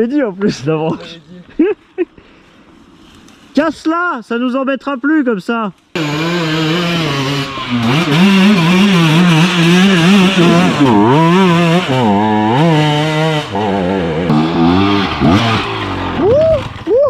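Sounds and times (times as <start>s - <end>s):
motorcycle engine revving: 6.0s - 16.9s.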